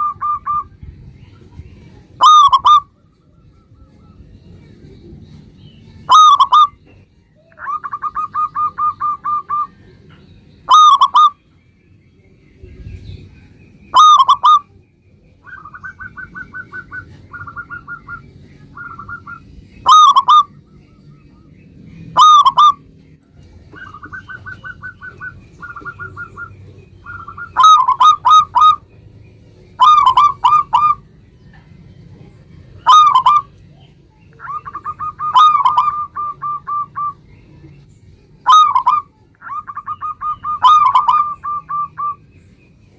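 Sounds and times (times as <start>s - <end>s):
dove cooing: 0.0s - 0.7s, 2.2s - 3.0s, 6.1s - 9.9s, 10.7s - 11.4s, 13.9s - 14.7s, 15.4s - 20.6s, 22.1s - 22.9s, 23.6s - 28.8s, 29.8s - 31.0s, 32.8s - 33.6s, 34.4s - 37.2s, 38.4s - 42.2s.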